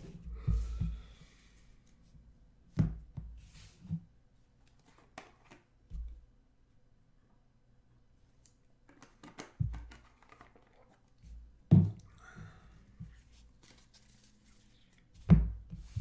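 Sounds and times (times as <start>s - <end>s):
cards rustling and clicking: 8.9s - 11.2s, 13.5s - 15.2s.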